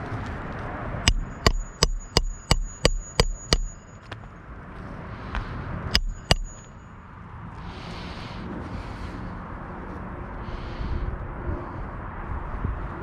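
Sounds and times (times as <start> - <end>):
hammer striking nails: 1.1 - 4.2, 6.0 - 6.8.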